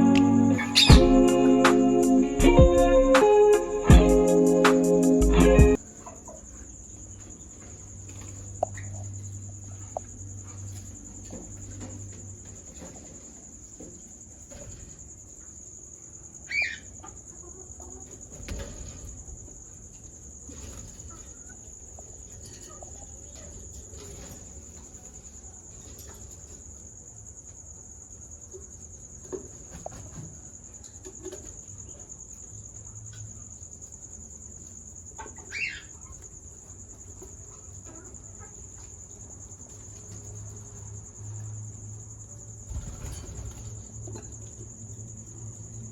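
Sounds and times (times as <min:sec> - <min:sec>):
steady high-pitched tone: 0:00.0 - 0:05.8
finch calls: 0:00.6 - 0:01.1, 0:16.5 - 0:16.9, 0:35.5 - 0:36.0.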